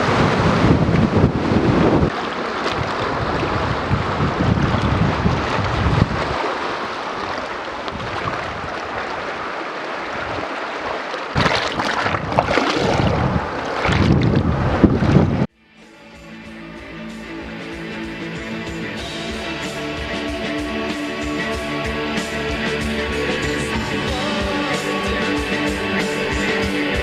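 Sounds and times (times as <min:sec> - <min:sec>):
wind buffeting microphone: 0:00.0 - 0:10.6, 0:11.3 - 0:15.5.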